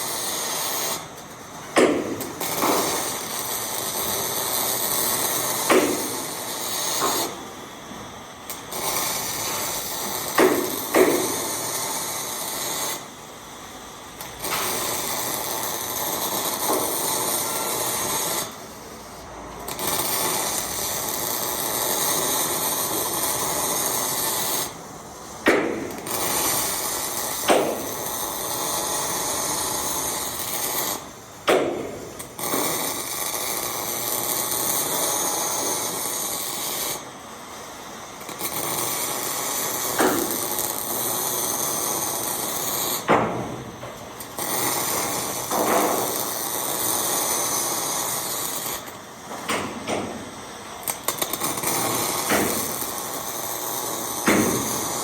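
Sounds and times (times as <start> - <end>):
welding pops: 0.0 - 37.0, 38.2 - 55.0
welding arc crackling: 0.0 - 55.0.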